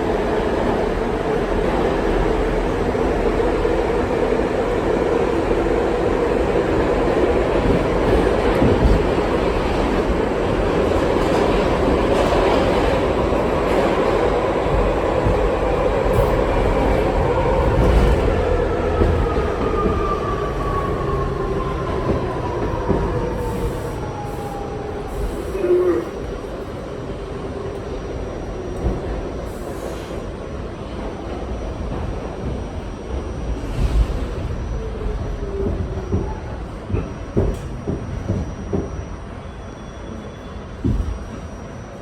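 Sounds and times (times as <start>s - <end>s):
subway wheels rumbling on rail: 0.0s - 42.0s.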